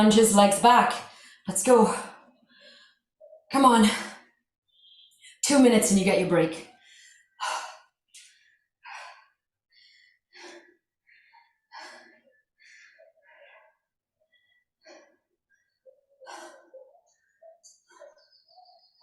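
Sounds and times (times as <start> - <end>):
woman breathing hard: 6.7 - 17.0.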